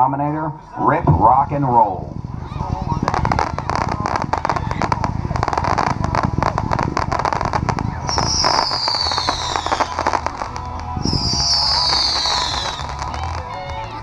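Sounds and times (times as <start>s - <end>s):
firework shots and crackling pops: 3.0s - 14.0s
high falling whistle: 8.0s - 13.0s.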